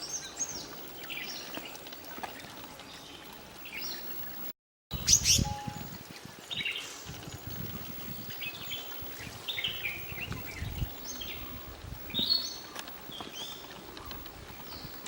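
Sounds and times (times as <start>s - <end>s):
birds singing: 4.9s - 15.0s.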